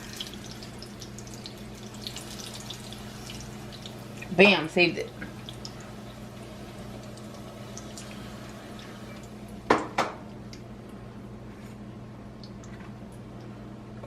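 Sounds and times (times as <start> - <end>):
tortilla frying in oil: 0.0 - 10.6.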